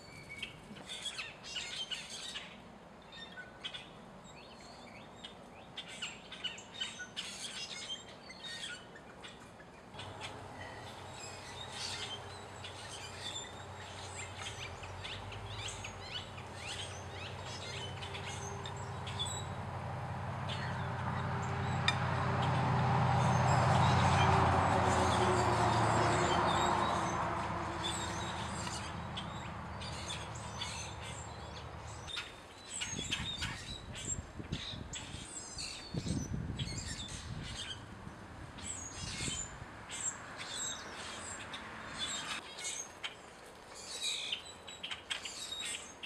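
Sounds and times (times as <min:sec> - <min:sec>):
wild birds chirping: 0:00.0 - 0:46.0
low steady rumble: 0:10.0 - 0:32.0.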